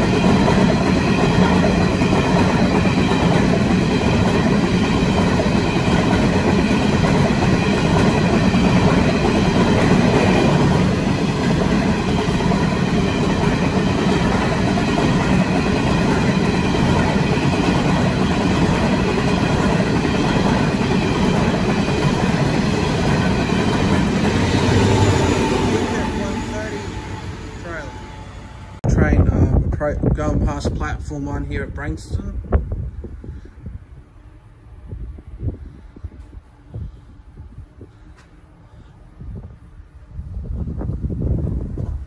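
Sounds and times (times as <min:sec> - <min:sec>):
steel wheels rumbling on rails: 0:00.0 - 0:30.2.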